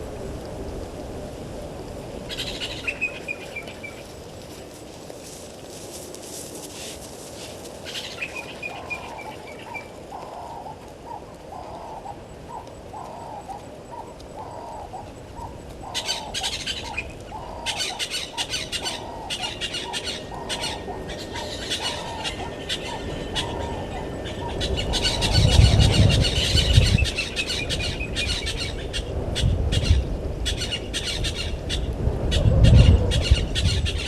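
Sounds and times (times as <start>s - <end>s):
bird cooing: 8.0s - 28.4s
sharp crackling high chatter: 11.6s - 28.6s.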